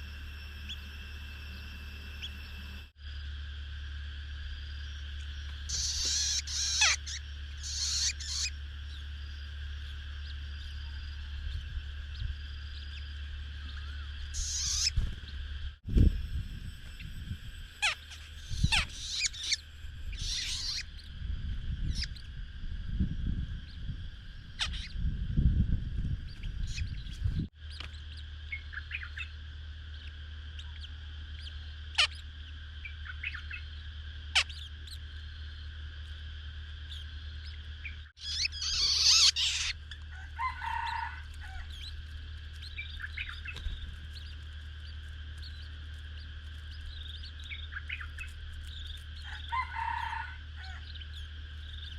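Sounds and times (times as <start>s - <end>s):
small birds chirping: 0.0s - 3.3s, 4.3s - 16.2s, 16.8s - 51.9s
low rumble: 0.0s - 27.5s
steady high hum: 0.0s - 51.9s.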